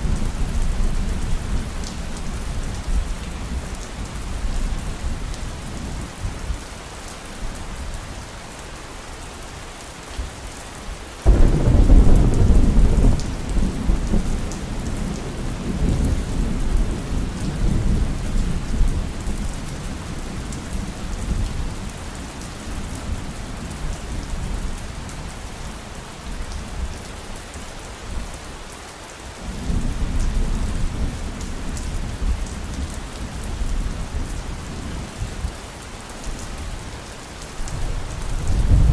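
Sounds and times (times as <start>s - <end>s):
heavy rain: 0.0s - 38.9s
thunder crack and rumble: 11.3s - 19.2s, 37.7s - 38.9s.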